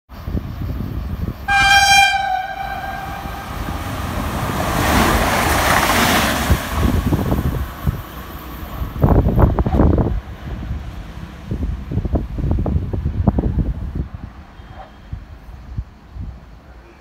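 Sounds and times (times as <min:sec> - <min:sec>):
train passing at speed: 0:00.1 - 0:17.0
train horn: 0:01.5 - 0:04.1.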